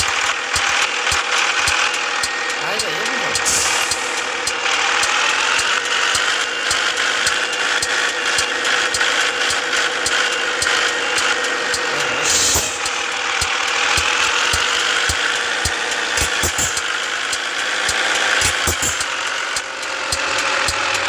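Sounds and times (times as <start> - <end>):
truck drivetrain whine: 1.3 - 21.0.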